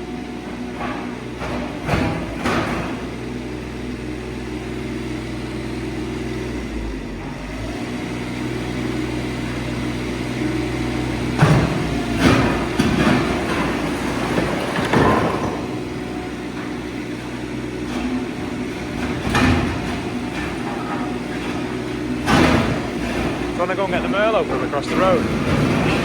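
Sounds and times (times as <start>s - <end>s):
diesel engine running: 0.0s - 26.0s
masonry knocking and clattering: 11.3s - 26.0s.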